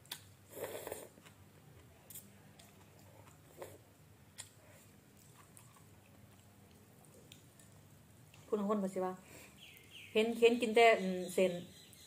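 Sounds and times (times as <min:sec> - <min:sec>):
faint chewing of noodles: 0:00.0 - 0:08.5.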